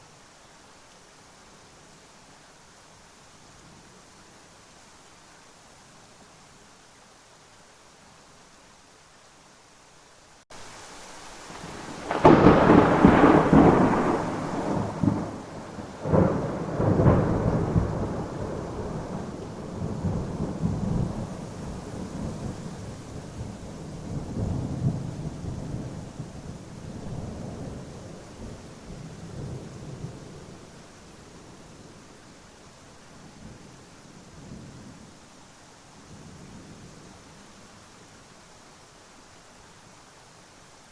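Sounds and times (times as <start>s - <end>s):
rain hissing: 0.0s - 40.9s
thunder cracking and rumbling: 11.6s - 22.6s.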